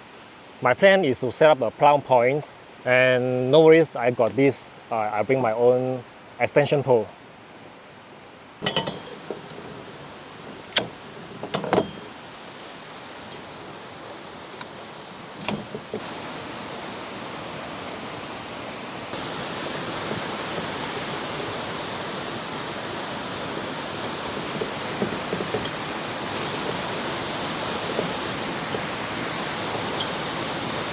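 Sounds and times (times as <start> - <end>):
river water rushing: 6.0 - 30.9
sharp knocks and clicks: 8.6 - 9.8, 10.5 - 12.1, 15.4 - 16.0.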